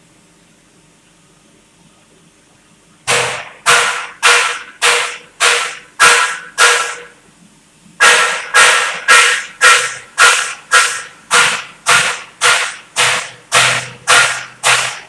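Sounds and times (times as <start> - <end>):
metal being struck: 8.0 - 15.0.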